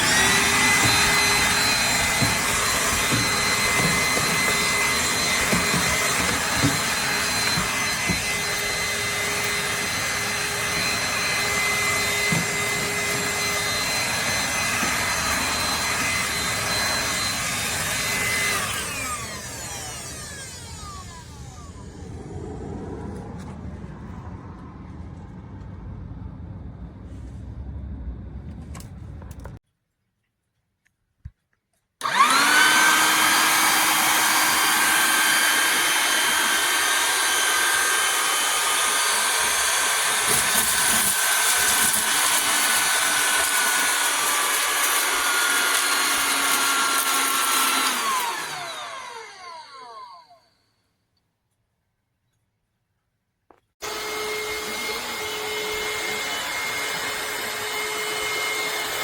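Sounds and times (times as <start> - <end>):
handheld vacuum motor whining: 0.0 - 22.4, 32.0 - 50.6, 53.8 - 59.0
low rumble: 21.4 - 29.6
rushing air: 21.5 - 29.2.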